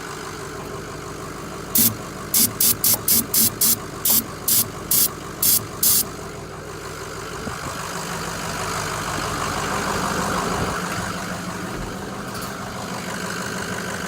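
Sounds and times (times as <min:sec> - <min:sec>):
diesel engine idling: 0:00.0 - 0:14.0
sharp loud bursts: 0:01.8 - 0:06.0.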